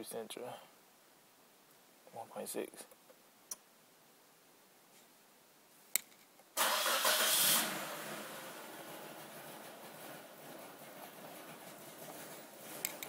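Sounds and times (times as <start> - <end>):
car engine starting and idling roughly: 6.6 - 12.8.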